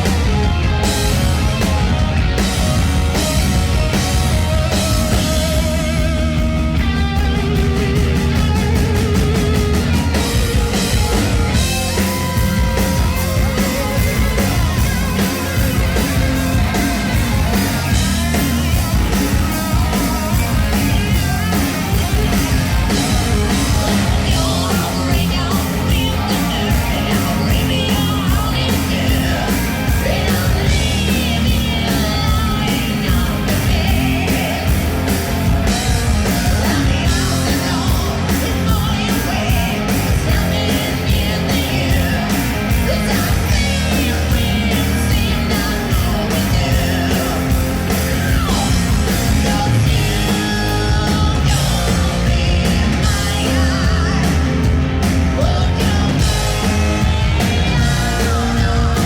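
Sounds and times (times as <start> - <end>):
bass guitar: 0.0 - 59.0
distorted electric guitars: 0.0 - 59.0
driving drums: 0.0 - 59.0.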